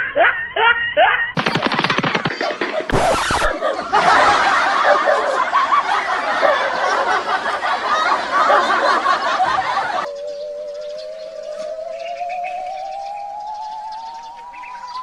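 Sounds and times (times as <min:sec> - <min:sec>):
people laughing: 0:02.4 - 0:10.1.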